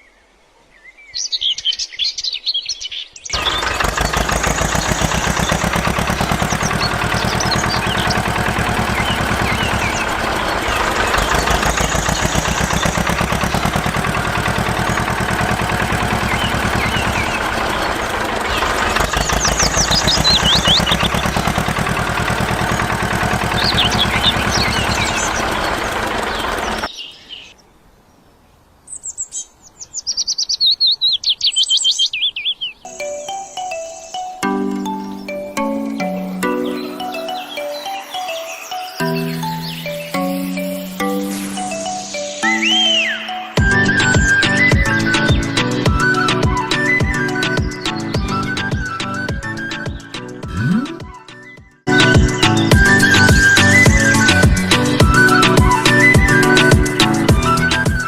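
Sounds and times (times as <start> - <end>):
birds chirping: 0.0 - 58.0
descending bird trills: 3.3 - 27.4, 32.9 - 58.0
fast-pulsing engine drone: 3.4 - 26.9, 43.6 - 49.3, 50.4 - 51.0, 51.9 - 58.0
music: 32.9 - 58.0.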